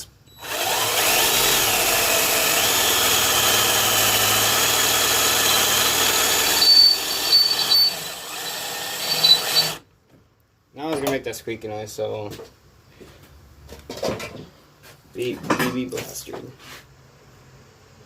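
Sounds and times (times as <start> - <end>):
electric drill boring metal: 0.0 - 9.8
drill bit squeaking: 0.3 - 9.8.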